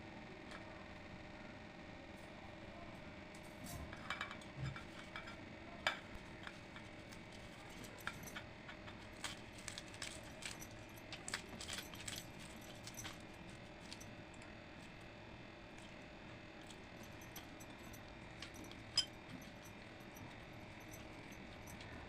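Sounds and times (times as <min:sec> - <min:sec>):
dishes and utensils clinking: 0:03.7 - 0:14.1, 0:16.6 - 0:22.0.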